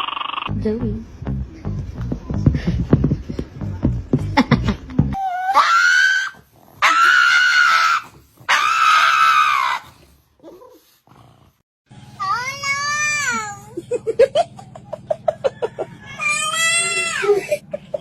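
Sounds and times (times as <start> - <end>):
animal screaming calls: 5.2 - 10.0.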